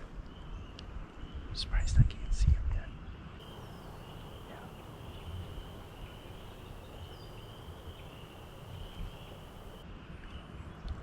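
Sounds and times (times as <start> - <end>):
faint bird call: 3.4 - 9.8
high-pitched animal chorus: 3.4 - 9.8.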